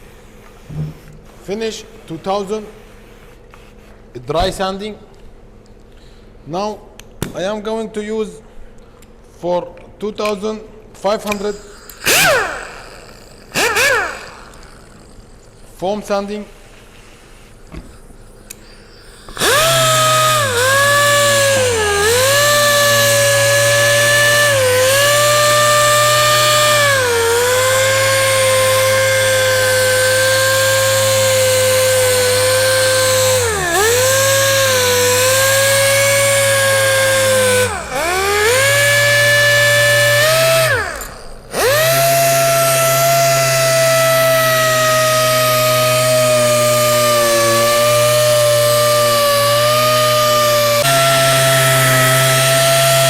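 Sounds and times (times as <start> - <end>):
power sander whine: 11.3 - 15.1, 19.3 - 53.0.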